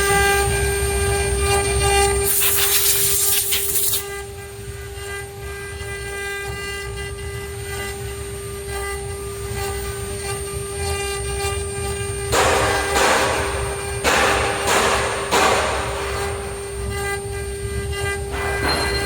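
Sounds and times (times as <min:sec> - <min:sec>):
cutting noise: 0:02.2 - 0:04.0, 0:12.3 - 0:17.2.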